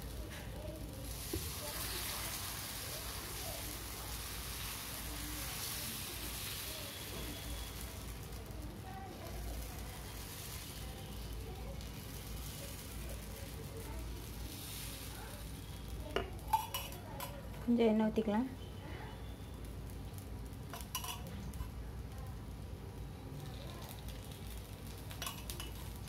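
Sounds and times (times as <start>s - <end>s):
batter sizzling on hot griddle: 0.0s - 26.0s.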